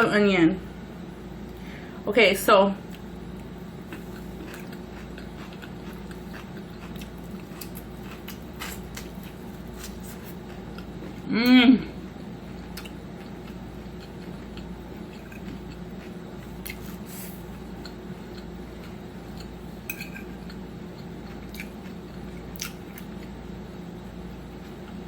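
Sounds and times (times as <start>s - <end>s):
steady low hum: 0.0s - 25.0s
person chewing: 2.9s - 11.3s, 12.0s - 23.4s
cutlery clicking on plate: 19.9s - 20.3s.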